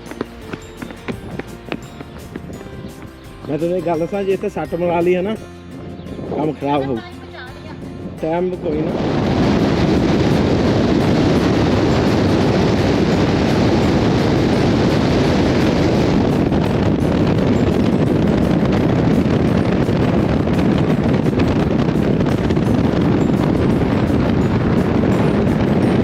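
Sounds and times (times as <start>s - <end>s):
wind on microphone: 0.0s - 26.0s
vehicle rushing rumble: 7.6s - 26.0s.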